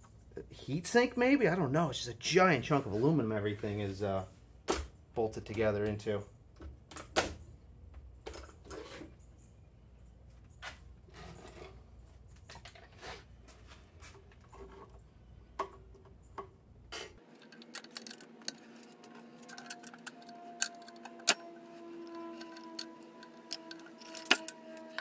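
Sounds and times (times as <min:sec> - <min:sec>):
metallic clicks of hand tools: 0:22.0 - 0:25.0.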